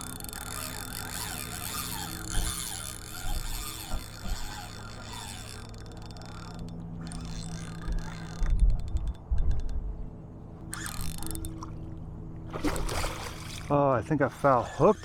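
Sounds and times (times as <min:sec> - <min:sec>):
fishing reel clicking and grinding: 0:00.0 - 0:09.8, 0:10.6 - 0:11.7, 0:14.2 - 0:15.0.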